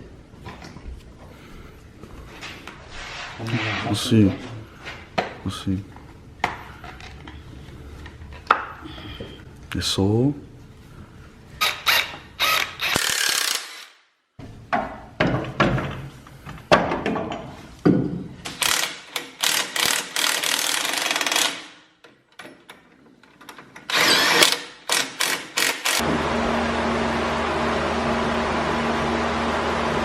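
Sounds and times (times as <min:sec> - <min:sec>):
power tool bursts: 0:11.6 - 0:14.0, 0:18.5 - 0:21.7, 0:23.9 - 0:26.1.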